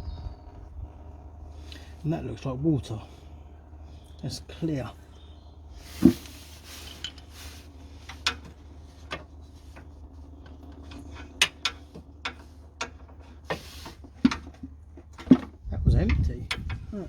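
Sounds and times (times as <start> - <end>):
steady low hum: 0.0 - 17.0
rustling: 5.8 - 9.8.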